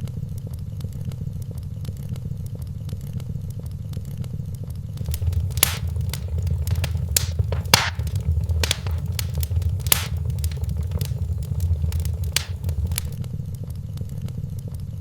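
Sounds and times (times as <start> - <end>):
loud pops and snaps: 5.0 - 13.2
low rumble of flames: 5.0 - 13.2
wood fire crackling: 5.0 - 13.2.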